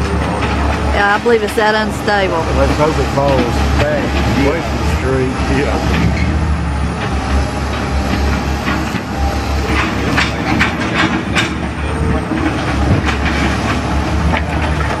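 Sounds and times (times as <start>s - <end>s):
diesel engine running: 0.0s - 15.0s
sharp metal clanks and knocks: 7.0s - 15.0s.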